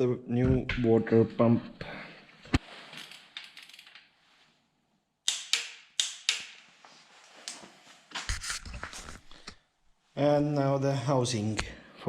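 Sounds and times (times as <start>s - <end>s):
metallic clicks of hand tools: 5.3s - 6.6s.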